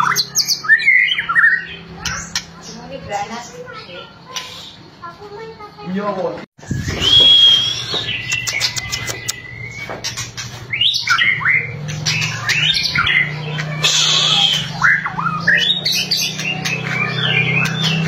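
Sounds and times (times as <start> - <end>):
songbird singing: 0.0 - 5.9, 6.6 - 18.0
bird clicks: 7.9 - 9.5.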